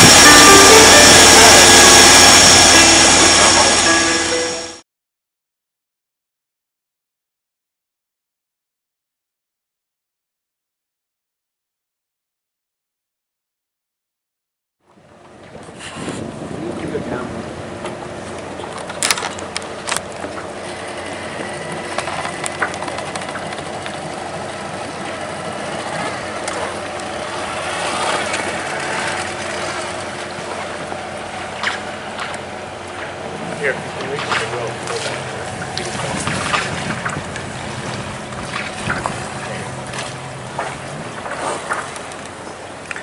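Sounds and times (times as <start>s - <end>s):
boat engine running: 0.0s - 4.8s, 14.9s - 43.0s
water splashing past hull: 15.4s - 43.0s.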